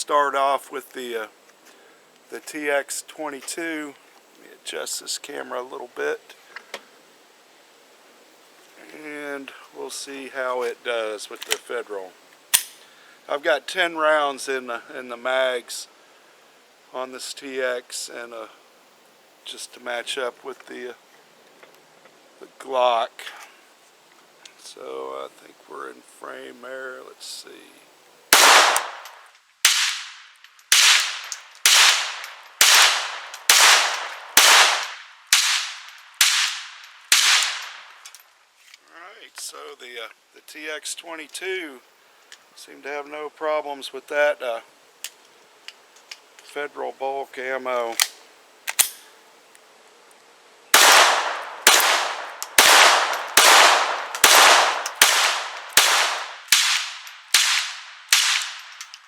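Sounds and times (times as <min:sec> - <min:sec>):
pistol shots: 0:28.3 - 0:37.9, 0:50.8 - 0:58.7.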